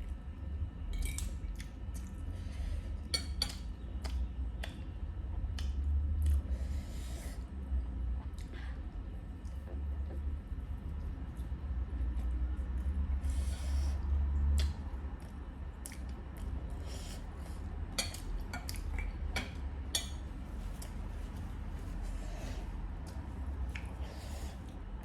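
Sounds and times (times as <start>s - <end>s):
steady low hum: 0.0s - 25.0s
hissy eating sounds: 4.0s - 19.2s.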